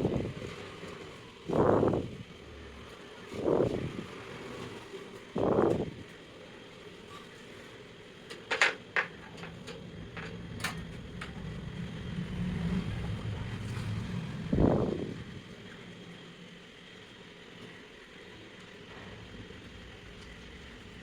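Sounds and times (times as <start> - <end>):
plastic parts clicking and knocking: 8.3 - 10.8.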